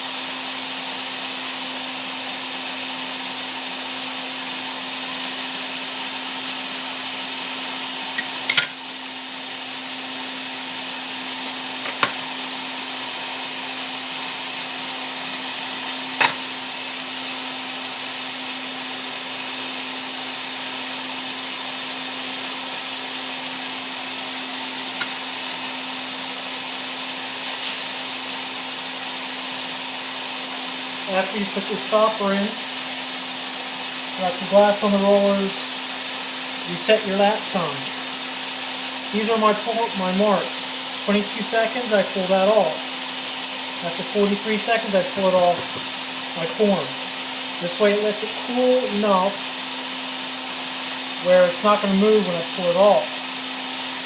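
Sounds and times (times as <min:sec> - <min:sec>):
gas burner flame hissing: 0:00.0 - 0:54.0
steady hum: 0:21.2 - 0:54.0.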